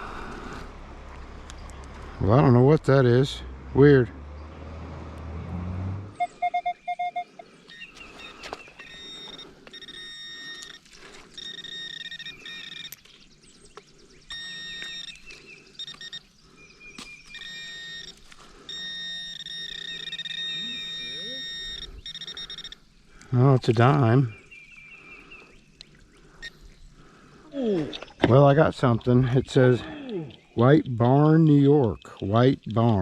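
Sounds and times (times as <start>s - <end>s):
metal detector beeps and tones: 6.2s - 13.2s, 14.3s - 16.3s, 17.0s - 22.9s
scattered clicks: 9.0s - 16.2s.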